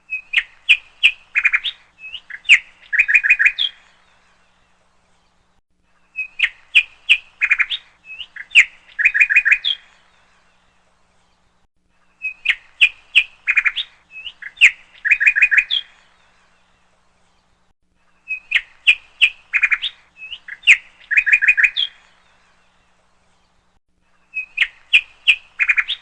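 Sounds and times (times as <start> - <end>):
bird chirping and whistling: 0.1 - 3.8, 6.2 - 9.8, 12.2 - 15.9, 18.3 - 22.0, 24.3 - 26.0.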